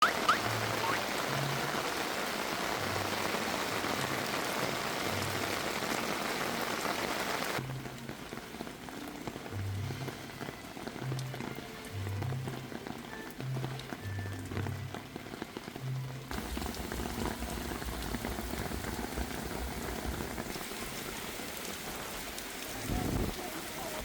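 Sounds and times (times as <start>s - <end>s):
heavy rain falling: 0.0s - 24.0s.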